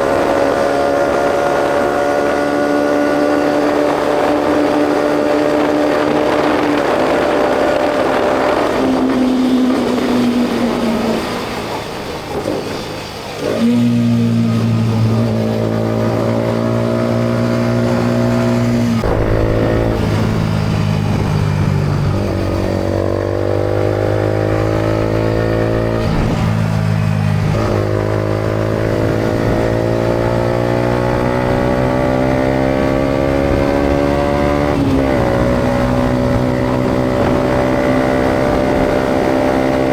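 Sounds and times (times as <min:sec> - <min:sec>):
motorcycle engine accelerating: 0:00.0 - 0:12.8, 0:13.4 - 0:39.9.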